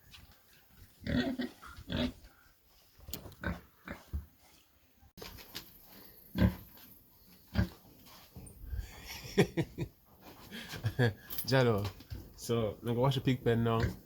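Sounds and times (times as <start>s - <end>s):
pigs grunting: 1.0s - 2.3s, 3.4s - 4.1s, 6.3s - 6.7s, 7.5s - 7.8s.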